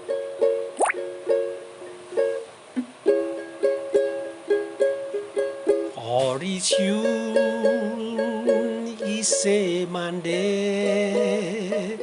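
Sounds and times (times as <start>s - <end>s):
ukulele strumming chords: 0.0s - 12.0s.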